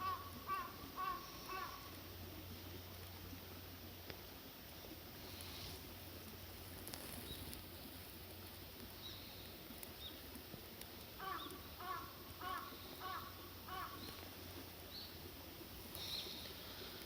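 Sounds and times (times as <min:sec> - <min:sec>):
crow cawing: 0:00.0 - 0:01.9, 0:11.2 - 0:14.0
small birds chirping: 0:11.2 - 0:17.0.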